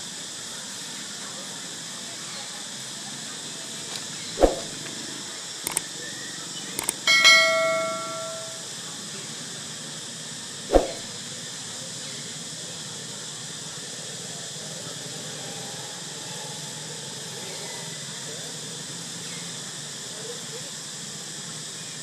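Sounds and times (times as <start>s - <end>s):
light clicks: 6.8s - 7.0s
metal object ringing: 7.1s - 8.6s.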